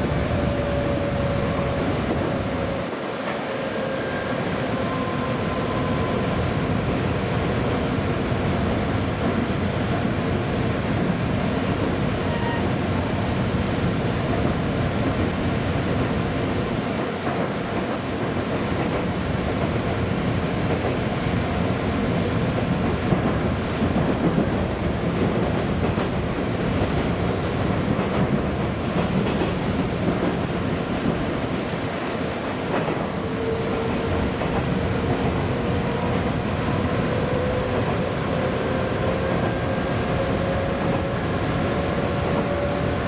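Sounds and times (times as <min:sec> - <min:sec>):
train wheels rumbling on rail: 0:00.0 - 0:43.0
train knocks: 0:22.6 - 0:31.3, 0:32.0 - 0:43.0.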